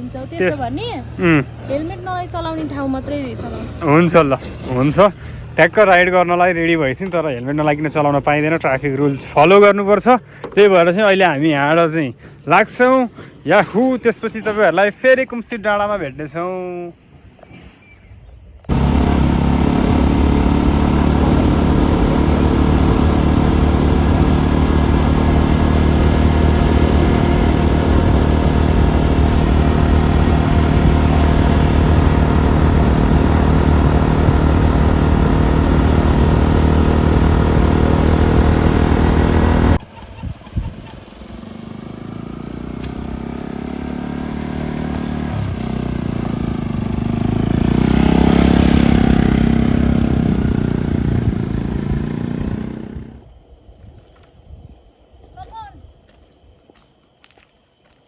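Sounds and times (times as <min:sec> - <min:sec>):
motorcycle engine: 0:00.0 - 0:08.6, 0:18.7 - 0:53.3.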